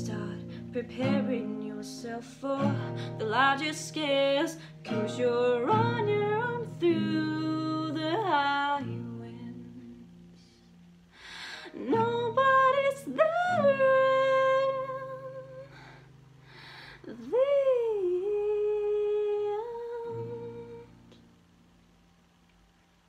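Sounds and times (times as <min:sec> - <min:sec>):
person singing wordlessly: 0:00.0 - 0:10.4, 0:11.7 - 0:15.7, 0:17.0 - 0:21.1
singer breathing: 0:11.1 - 0:11.8, 0:15.7 - 0:17.1.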